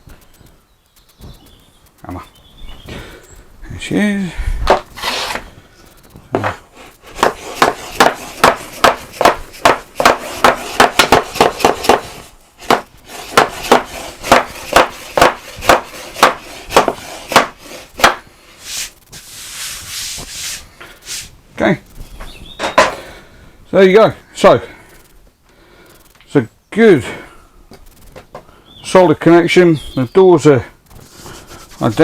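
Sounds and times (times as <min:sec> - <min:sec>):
brief rushing scrape: 0:04.6 - 0:05.5
hammer knocking on wood: 0:07.2 - 0:18.2.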